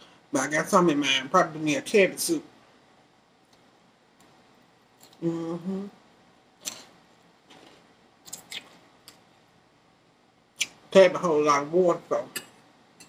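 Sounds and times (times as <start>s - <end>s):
person humming: 5.2s - 6.0s
chewing salad greens: 6.6s - 9.3s.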